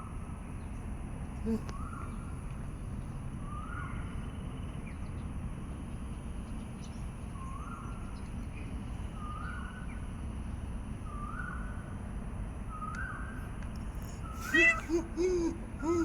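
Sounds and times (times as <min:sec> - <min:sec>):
animal rising calls: 0:14.3 - 0:16.0.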